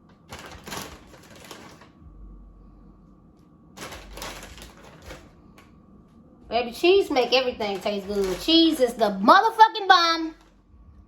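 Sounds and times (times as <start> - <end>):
kitchen clicks and rustles: 0.2 - 1.9, 3.8 - 5.7, 7.6 - 9.1.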